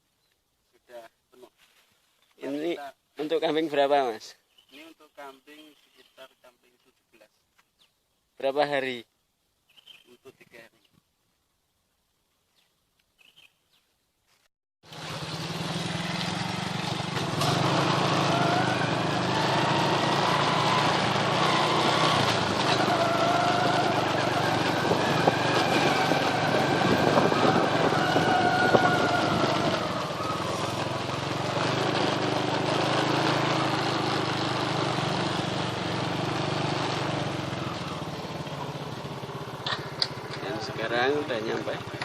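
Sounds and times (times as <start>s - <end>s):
small motorcycle engine: 14.9s - 42.0s.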